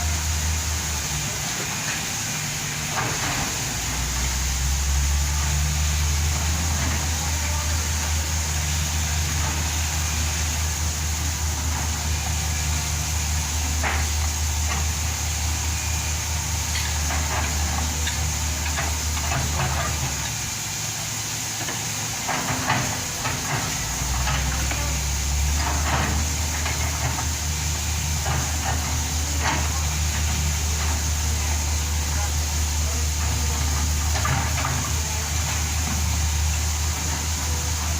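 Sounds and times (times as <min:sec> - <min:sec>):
diesel engine running: 0:00.0 - 0:37.9
machine knocks and clanks: 0:16.7 - 0:20.4, 0:21.6 - 0:27.4, 0:33.2 - 0:36.2.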